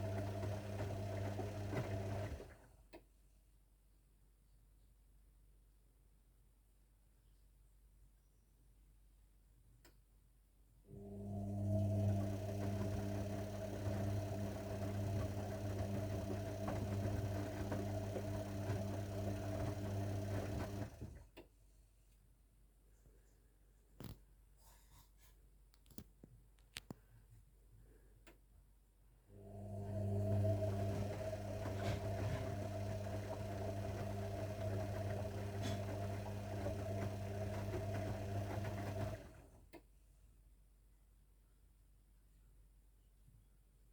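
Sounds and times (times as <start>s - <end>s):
washing machine humming: 0.0s - 2.8s, 10.9s - 21.3s, 29.4s - 39.8s.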